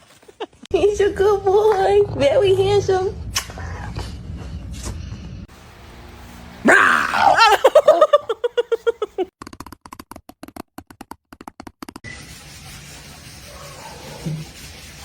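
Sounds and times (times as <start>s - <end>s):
dog crying: 6.7s - 9.2s
dog yelping: 6.7s - 9.2s.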